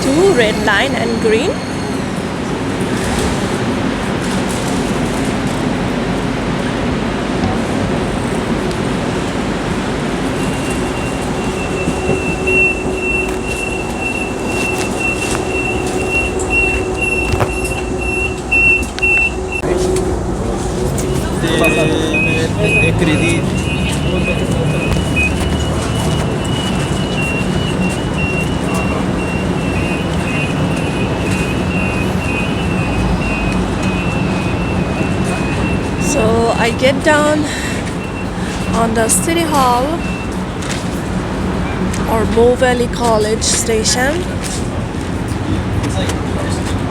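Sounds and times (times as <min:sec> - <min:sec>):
high wheel squeal: 0:00.0 - 0:03.4, 0:10.2 - 0:20.1, 0:20.8 - 0:40.6
light-rail train on rails: 0:00.0 - 0:46.9.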